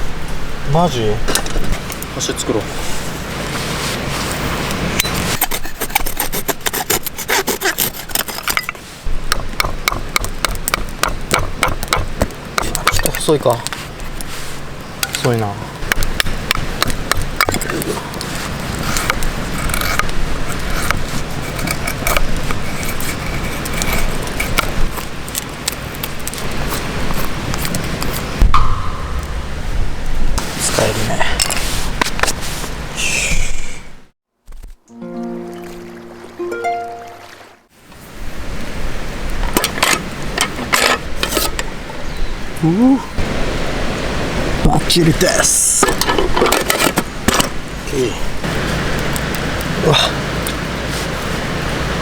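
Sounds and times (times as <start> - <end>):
knife shaving wood: 5.2 - 8.8, 15.9 - 28.3
blade rasping on wood: 5.4 - 12.8, 18.3 - 25.0
low rumble: 28.4 - 30.6.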